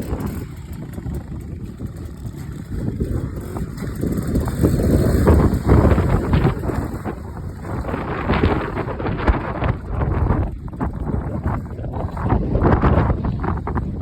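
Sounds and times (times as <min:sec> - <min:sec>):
motorcycle engine: 0:00.0 - 0:14.0
wind rumble on microphone: 0:00.0 - 0:14.0.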